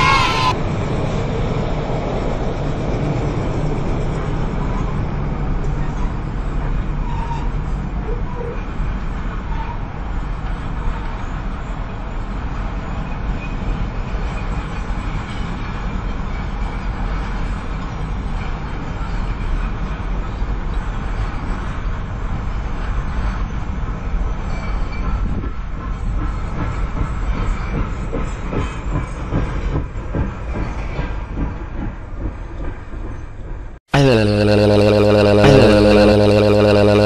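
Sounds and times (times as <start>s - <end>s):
freight train rumbling past: 0.0s - 8.0s.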